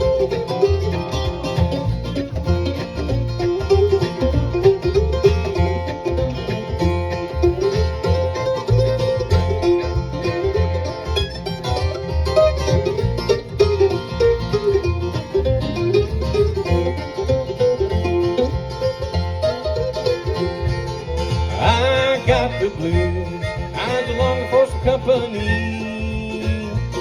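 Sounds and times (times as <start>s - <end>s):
banjo: 0.0s - 27.0s
bass pulse: 0.0s - 27.0s
guitar: 0.0s - 27.0s.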